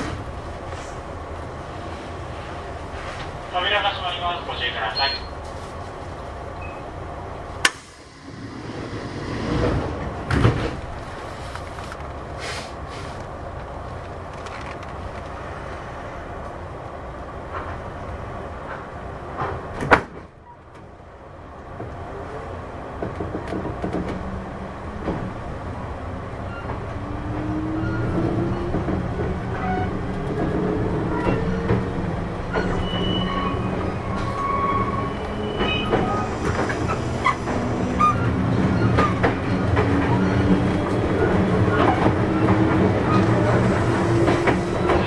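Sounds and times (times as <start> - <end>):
train sliding doors opening: 0.0 - 21.0, 21.6 - 45.0
train doors banging shut: 8.6 - 11.0, 18.7 - 20.9, 23.0 - 24.3, 27.9 - 45.0
train running with rising motor tone: 26.8 - 45.0.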